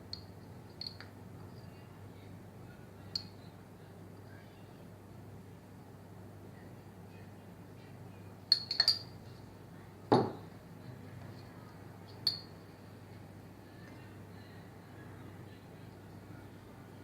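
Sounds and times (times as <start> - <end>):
kitchenware clinking against dish: 8.5 - 9.1, 12.2 - 12.5
dull knock: 10.1 - 10.4.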